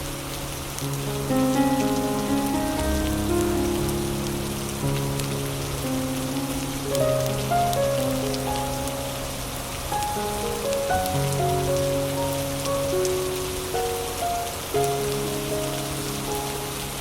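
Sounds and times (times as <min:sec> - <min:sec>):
soft instrumental music: 0:00.0 - 0:17.0
steady rain: 0:00.0 - 0:17.0.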